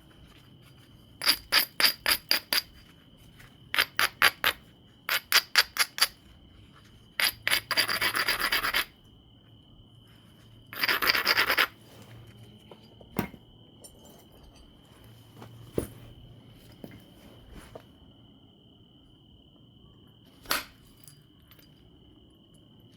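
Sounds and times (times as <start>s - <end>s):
stone grinding along stone edge: 1.2s - 2.9s, 3.7s - 6.2s, 7.1s - 9.0s, 10.7s - 11.8s.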